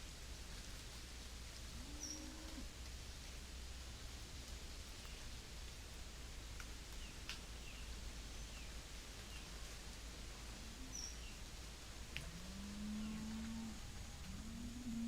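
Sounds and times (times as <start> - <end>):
faint ticks: 0.6 - 9.8, 11.9 - 15.0
low rumble: 10.4 - 15.0.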